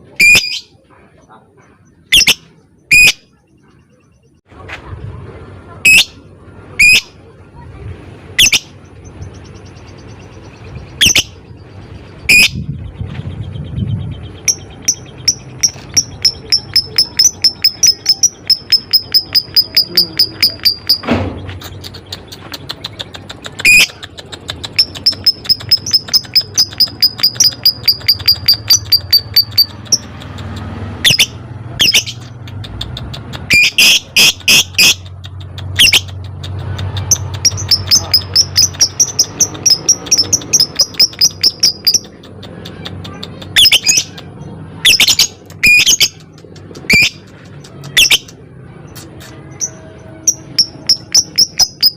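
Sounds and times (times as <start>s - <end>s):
bird ticking chirps: 8.4s - 51.9s.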